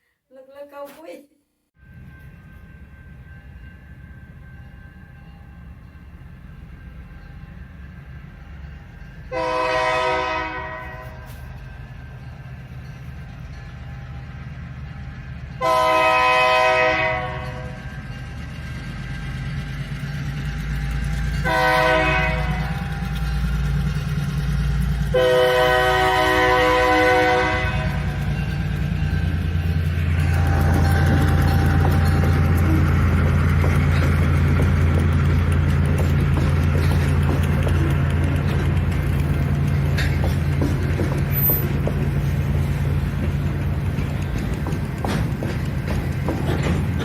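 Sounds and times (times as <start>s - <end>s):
train rumble: 1.8s - 47.0s
locomotive horn blasts: 9.3s - 11.5s, 15.6s - 17.8s, 21.4s - 23.0s, 25.1s - 28.3s, 30.1s - 32.6s.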